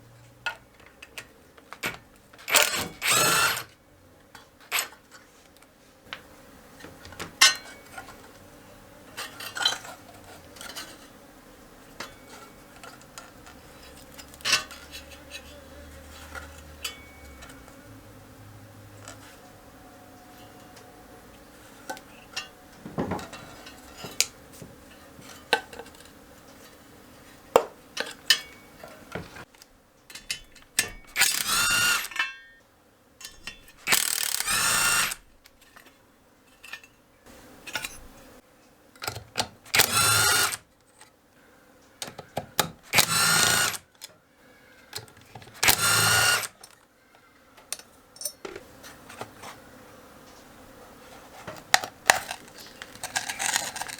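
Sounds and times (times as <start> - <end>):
power drill whining: 2.5 - 3.7, 31.0 - 32.2, 33.8 - 35.3, 39.8 - 40.6, 42.9 - 43.9, 45.6 - 46.7
tools clicking and tapping: 28.0 - 32.5, 33.2 - 35.2, 47.6 - 48.7.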